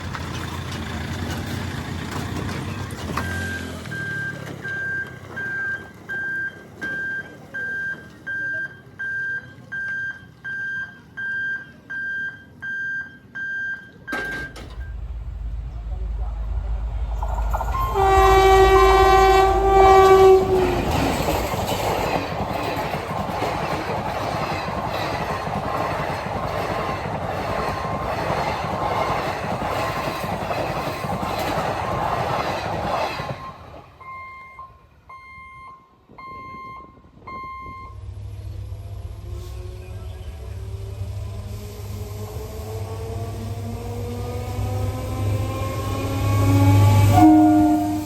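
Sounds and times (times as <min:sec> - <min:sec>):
train rushing past: 0:00.0 - 0:06.8, 0:14.1 - 0:34.3, 0:37.0 - 0:48.0
wheels clacking over rail joints: 0:00.0 - 0:07.4, 0:14.1 - 0:34.0
short electronic beeps: 0:03.2 - 0:15.2, 0:33.4 - 0:38.1
train horn blowing: 0:17.6 - 0:21.2, 0:45.8 - 0:48.0.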